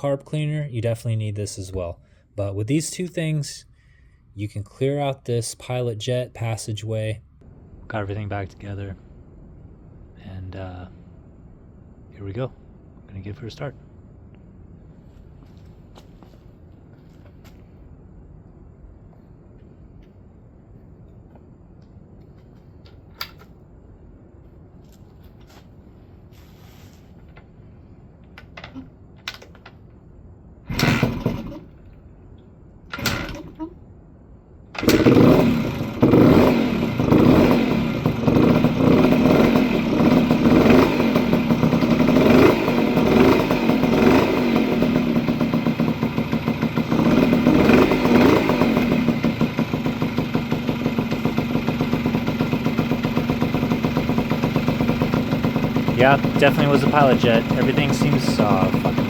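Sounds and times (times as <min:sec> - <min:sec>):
two-stroke engine starting and idling: 0:30.7 - 0:31.8, 0:32.9 - 0:33.6, 0:34.7 - 0:59.0.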